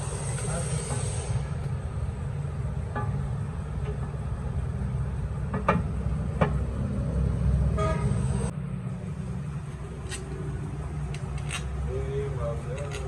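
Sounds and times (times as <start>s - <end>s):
traffic rumble: 0.0s - 13.0s
vehicle horn toot: 7.7s - 8.3s.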